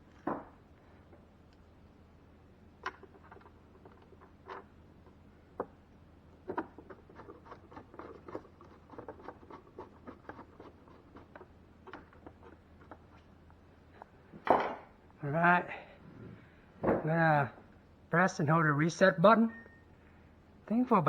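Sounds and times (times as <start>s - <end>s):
faint low hum: 0.0s - 21.0s
small clicks and scratches on plastic: 2.8s - 5.8s, 6.4s - 14.2s.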